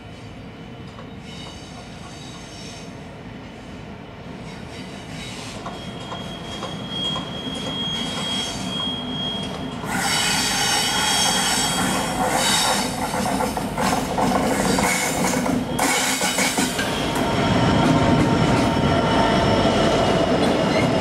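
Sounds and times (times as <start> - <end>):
wheel flanges squealing on rails: 4.4 - 21.0.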